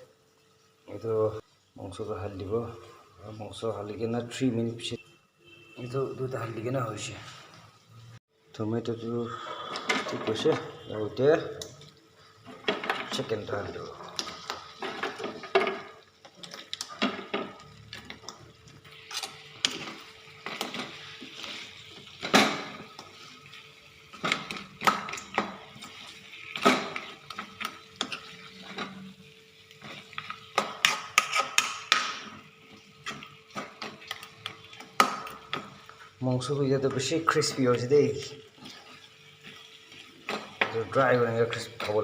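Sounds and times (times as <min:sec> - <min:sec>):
chicken frying: 0:00.0 - 0:42.0
spoon scraping a pan: 0:12.2 - 0:36.2, 0:37.3 - 0:41.0.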